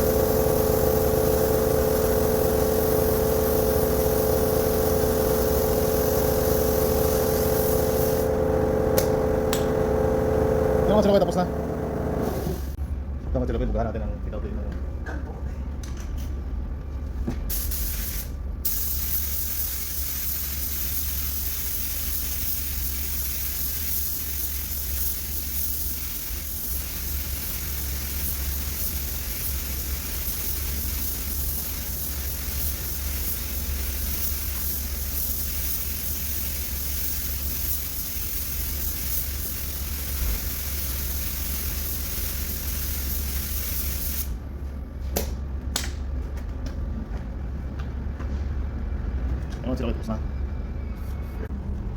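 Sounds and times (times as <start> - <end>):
paint spray gun hissing: 0.0 - 12.8, 17.5 - 44.4
steady low hum: 0.0 - 51.9.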